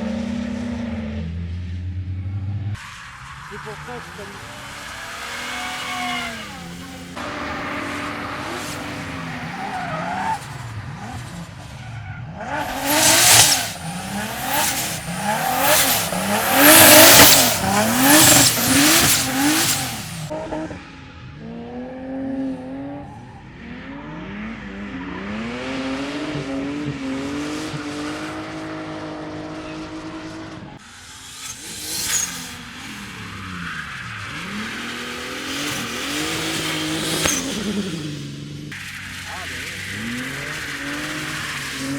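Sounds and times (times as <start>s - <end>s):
car engine revving: 0.0s - 41.9s
tyres screeching: 12.5s - 20.3s.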